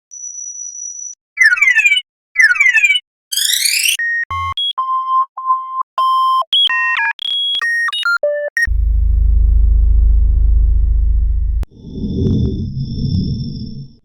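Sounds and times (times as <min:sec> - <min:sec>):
low electronic buzz: 0:08.7 - 0:11.7.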